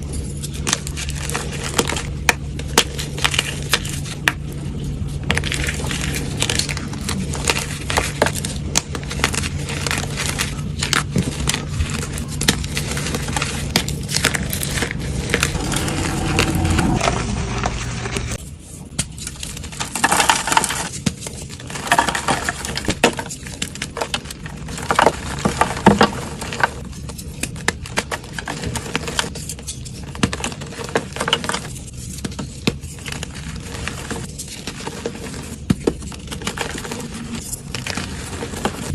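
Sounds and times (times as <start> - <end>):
low steady hum: 0.0 - 24.8.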